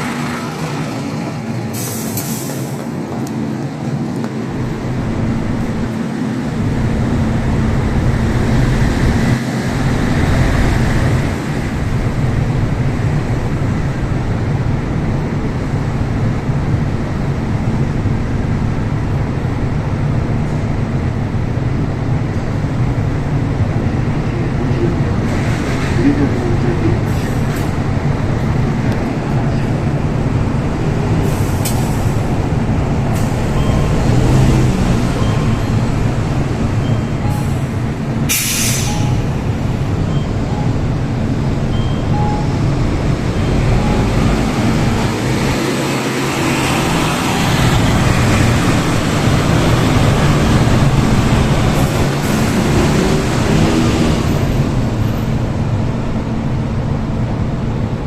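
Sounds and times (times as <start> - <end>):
bus diesel engine idling: 0.0 - 58.0
air release hiss: 38.3 - 39.2.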